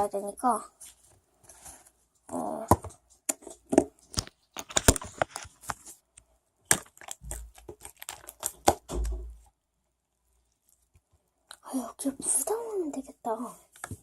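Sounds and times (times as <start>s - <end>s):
hands handling small objects: 2.8s - 9.4s.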